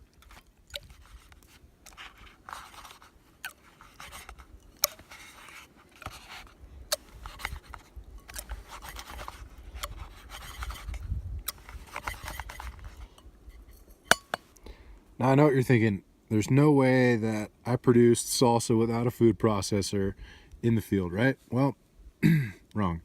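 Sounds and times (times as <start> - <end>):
wet scraping and squishing: 0.0 - 14.1.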